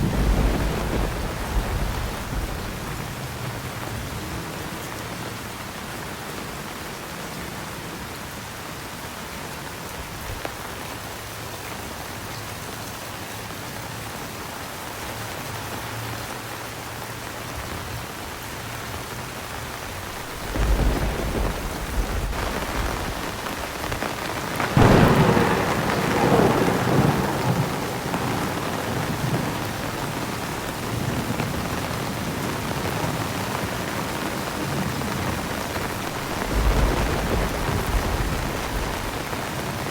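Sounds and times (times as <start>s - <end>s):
thunder rumbling and cracking: 0.0s - 3.8s, 19.6s - 39.9s
heavy rain: 0.0s - 39.9s.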